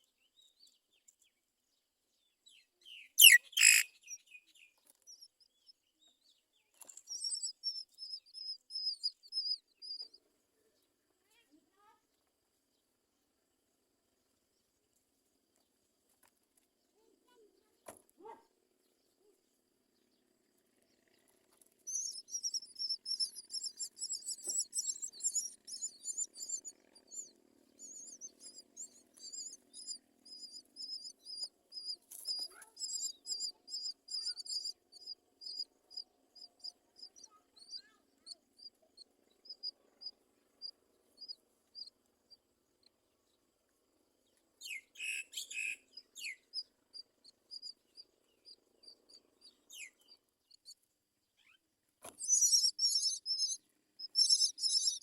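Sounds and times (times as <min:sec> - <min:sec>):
nestling birds chirping: 0:02.8 - 0:05.7, 0:06.8 - 0:10.2, 0:20.9 - 0:42.9, 0:44.3 - 0:50.8, 0:51.4 - 0:55.0.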